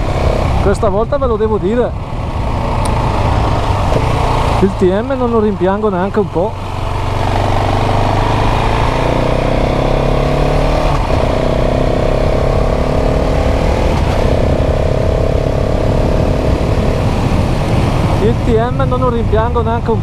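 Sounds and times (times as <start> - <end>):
motorcycle engine accelerating hard: 0.0 - 20.0.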